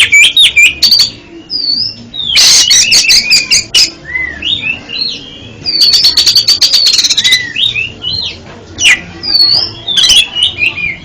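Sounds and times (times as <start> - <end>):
bird singing whistled notes: 0.0 - 11.0.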